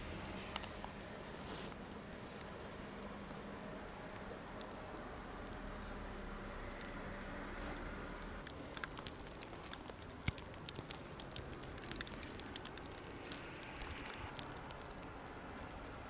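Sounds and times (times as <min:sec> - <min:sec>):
ice pellets ticking on microphone: 0:07.8 - 0:16.0.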